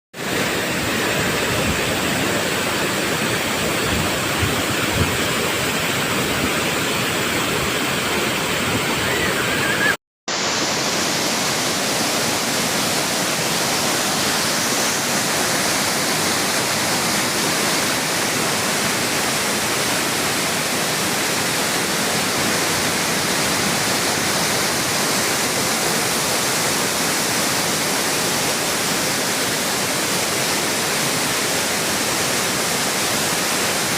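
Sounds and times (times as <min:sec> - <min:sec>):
water pouring over waterfall: 0:10.3 - 0:33.9.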